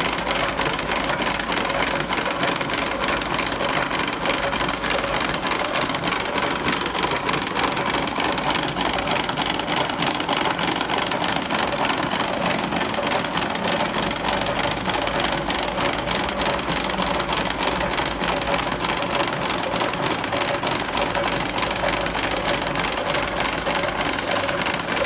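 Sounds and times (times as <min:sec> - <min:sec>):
machine clattering clicks: 0:00.0 - 0:25.0.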